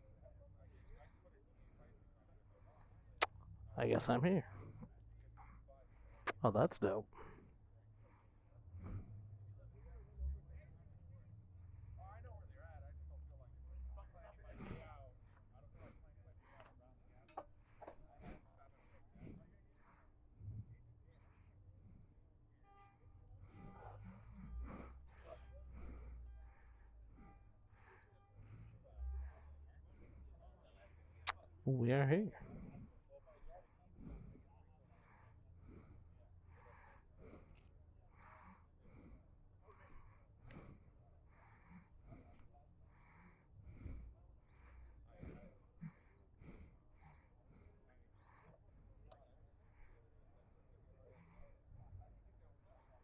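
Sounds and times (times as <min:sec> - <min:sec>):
faint breathing: 0:00.0 - 0:53.0
person breathing into microphone: 0:34.0 - 0:49.1.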